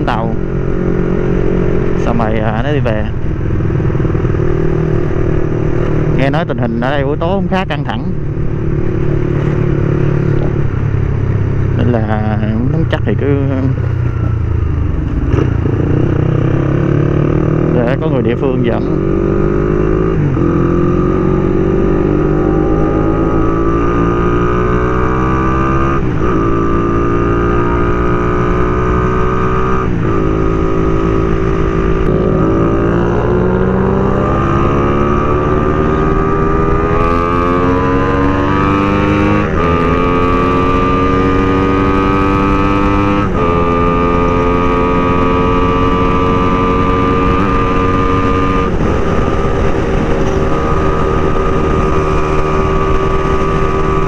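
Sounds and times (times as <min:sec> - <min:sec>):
motorcycle engine accelerating: 0:00.0 - 0:54.0
wind rumble on microphone: 0:18.8 - 0:54.0.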